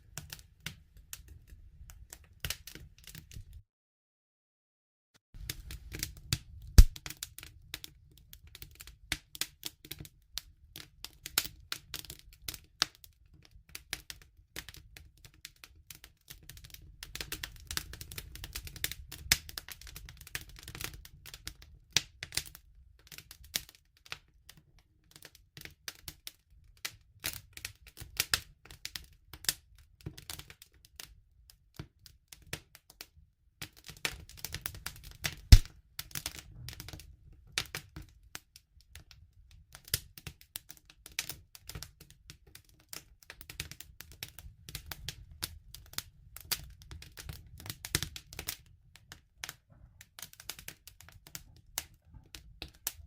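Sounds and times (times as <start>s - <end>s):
wood fire crackling: 5.4s - 24.2s, 33.6s - 39.1s, 39.7s - 53.0s.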